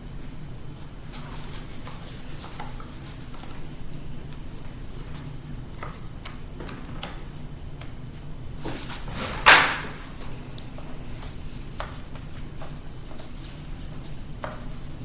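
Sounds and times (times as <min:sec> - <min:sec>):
loud scrape: 0:08.6 - 0:09.8.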